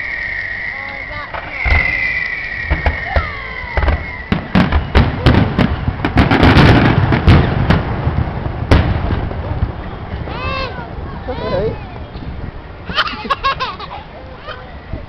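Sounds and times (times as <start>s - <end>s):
firework whistle: 0.0s - 7.6s
firework bangs and crackles: 0.0s - 14.2s.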